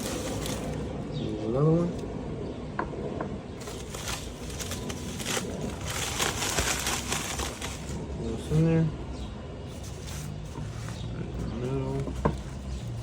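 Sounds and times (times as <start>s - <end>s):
packaging wrap crinkling: 0.0s - 0.9s, 3.6s - 8.0s.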